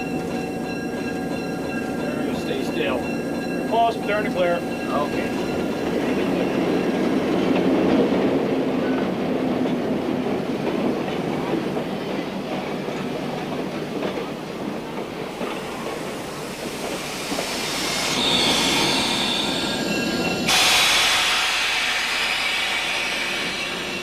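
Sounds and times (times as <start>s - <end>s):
train wheels squealing: 0.0s - 7.6s, 15.4s - 24.0s
train rolling on track: 0.0s - 24.0s.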